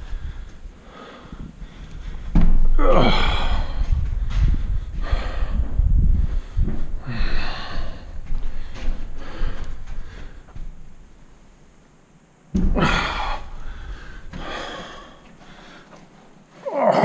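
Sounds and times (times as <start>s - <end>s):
low rumble: 0.0s - 11.3s
man gasping and grunting: 2.7s - 3.9s, 7.0s - 10.3s, 12.7s - 16.0s.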